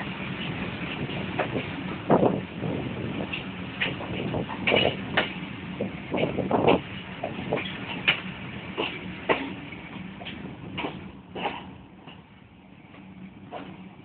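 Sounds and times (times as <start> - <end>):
railway carriage rolling: 0.0 - 14.0
metallic clanks and rattles: 3.3 - 5.4.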